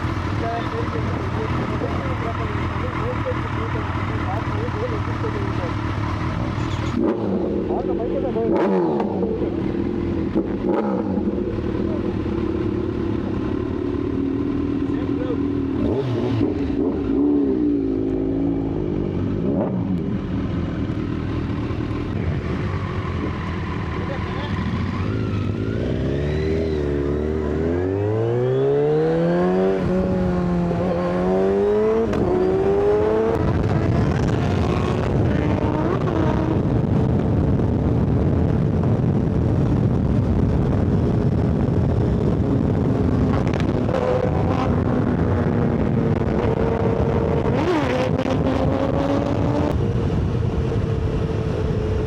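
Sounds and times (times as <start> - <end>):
motorbike engine running: 0.0 - 8.2
motorcycle engine cruising: 0.0 - 52.0
wind rush on microphone: 31.8 - 52.0.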